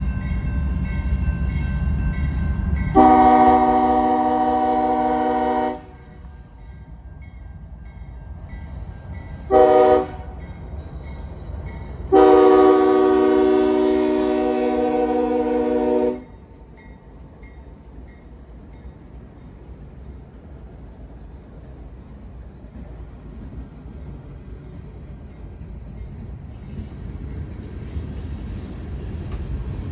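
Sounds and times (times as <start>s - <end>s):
low locomotive rumble: 0.0s - 29.9s
locomotive air horn blasts: 2.9s - 6.2s, 9.5s - 10.4s, 12.1s - 16.3s.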